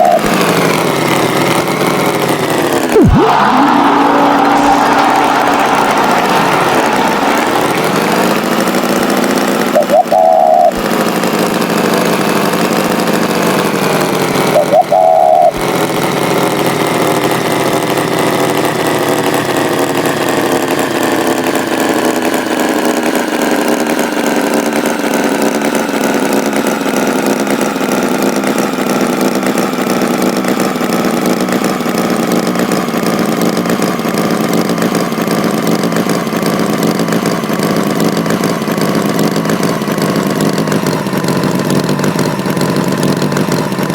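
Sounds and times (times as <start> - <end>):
tractor engine running: 0.0 - 43.9
short high-pitched tone: 2.9 - 10.8, 14.5 - 15.6.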